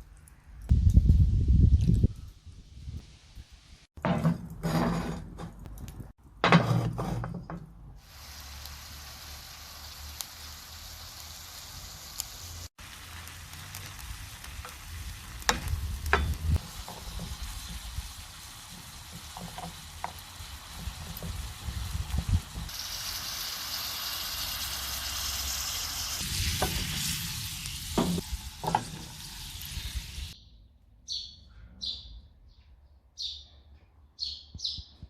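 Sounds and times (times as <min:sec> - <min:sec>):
food sizzling in a frying pan: 0:08.0 - 0:30.4.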